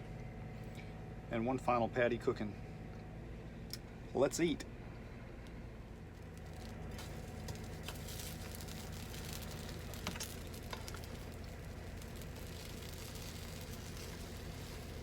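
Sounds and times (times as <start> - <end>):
steady low hum: 0.0 - 15.0
food sizzling in a pan: 7.1 - 15.0.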